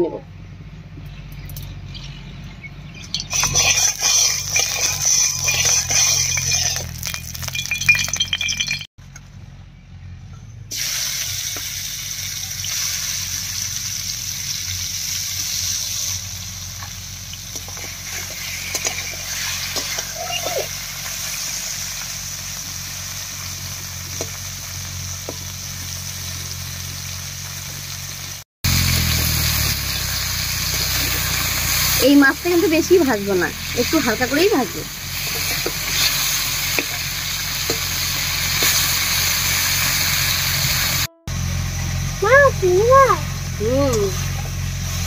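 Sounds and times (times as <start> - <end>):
prawns sizzling in oil: 3.1 - 8.9, 10.7 - 45.0.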